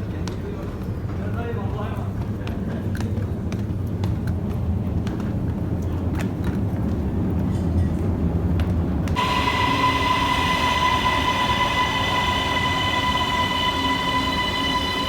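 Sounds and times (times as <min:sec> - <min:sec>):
low rumble: 0:09.2 - 0:15.0
steady high-pitched whine: 0:09.2 - 0:15.0.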